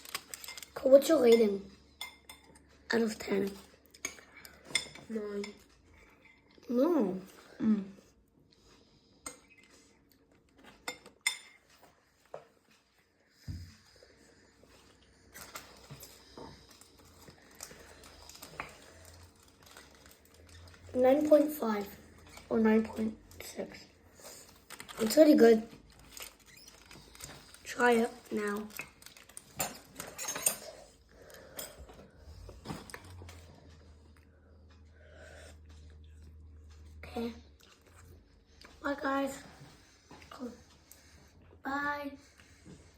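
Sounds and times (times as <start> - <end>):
tableware clicking and scraping: 0.0 - 6.5, 10.6 - 11.8, 29.1 - 32.0.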